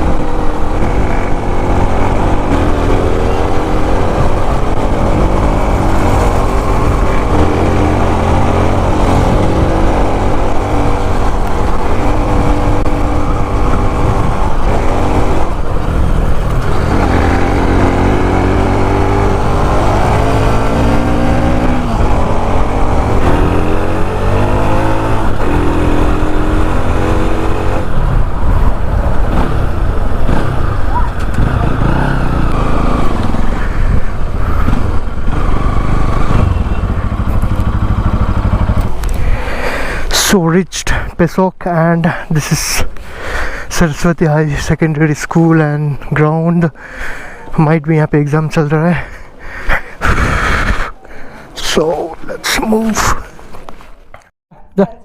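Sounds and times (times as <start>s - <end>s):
motorcycle engine accelerating: 0.0s - 39.6s.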